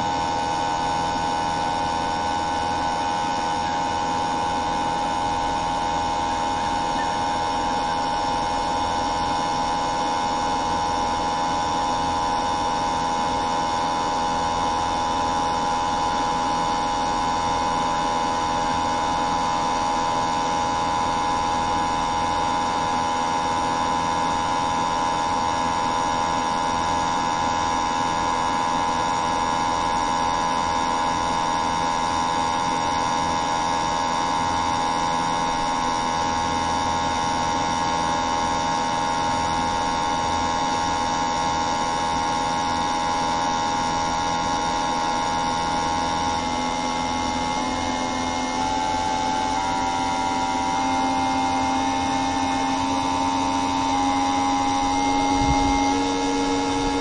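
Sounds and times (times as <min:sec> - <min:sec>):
machine-like drone: 0:00.0 - 0:20.2, 0:45.0 - 0:57.0.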